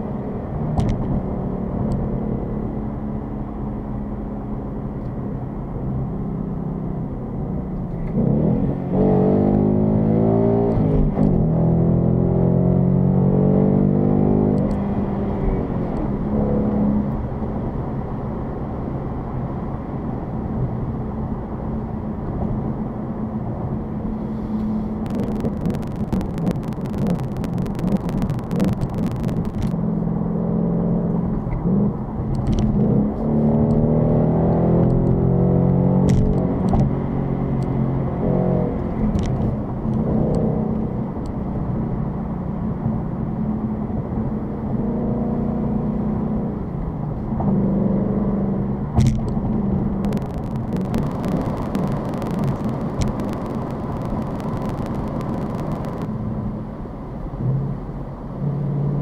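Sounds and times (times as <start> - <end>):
car engine driving: 0.0 - 59.0
rapid crackling clicks: 25.0 - 29.8, 50.0 - 56.1.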